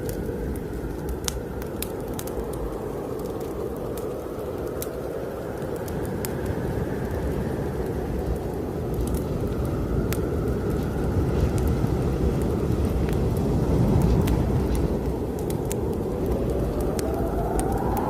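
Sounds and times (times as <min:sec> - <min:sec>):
snowstorm wind rumbling: 0:00.0 - 0:18.0
wood fire crackling: 0:00.0 - 0:18.0
wind whistle: 0:15.8 - 0:18.0.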